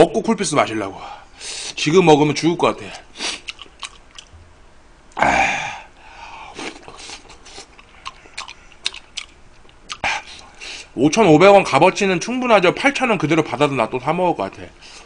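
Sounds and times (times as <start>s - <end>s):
man chewing with mouth smacks: 2.9s - 4.4s, 6.5s - 10.6s
breathy exhale: 5.2s - 7.2s.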